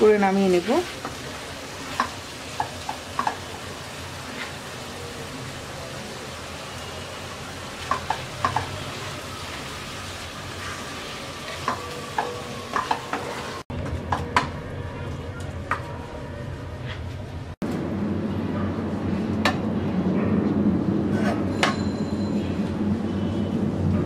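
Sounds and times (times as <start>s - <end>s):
food sizzling in a pan: 0.0s - 13.7s.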